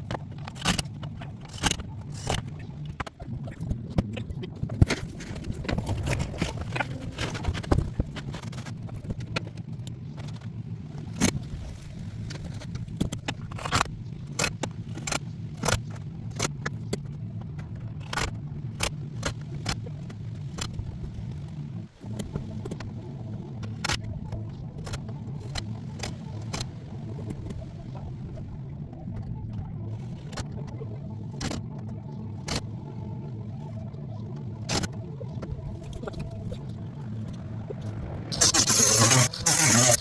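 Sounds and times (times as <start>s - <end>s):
low motor hum: 0.0s - 40.0s.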